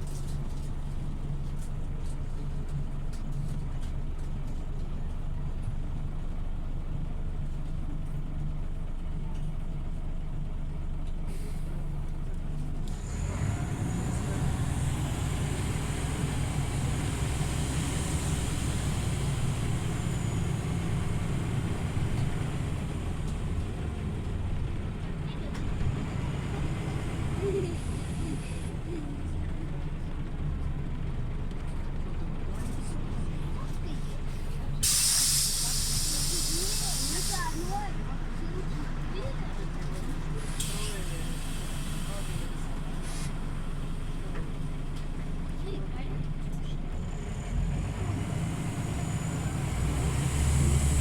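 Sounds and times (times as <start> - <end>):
bus engine running: 0.0 - 51.0
hiss: 34.8 - 37.8.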